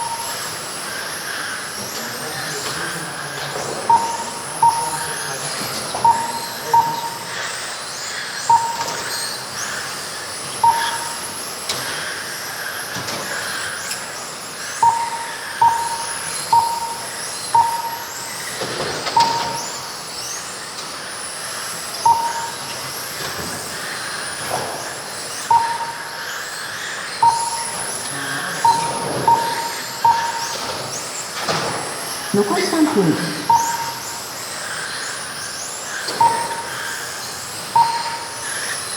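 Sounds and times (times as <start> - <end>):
lap timer beeps: 0.0 - 0.5, 3.6 - 7.5, 8.4 - 9.4, 10.6 - 11.4, 14.8 - 19.9, 22.0 - 22.9, 25.4 - 26.4, 27.2 - 31.0, 32.3 - 34.4, 36.1 - 38.9.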